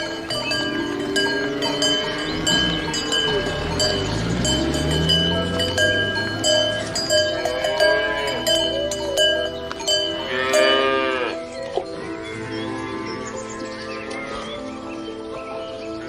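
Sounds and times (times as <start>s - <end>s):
cattle mooing: 0.0s - 11.5s
cowbells clanking: 0.0s - 12.1s.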